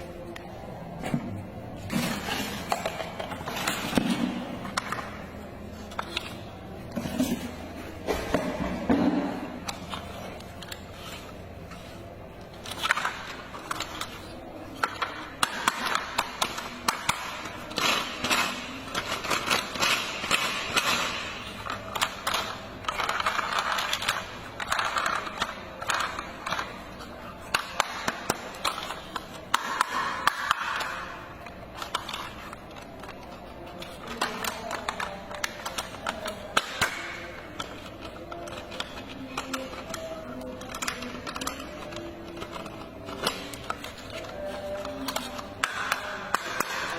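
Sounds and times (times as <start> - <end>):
plastic toy parts clicking: 12.5 - 46.9.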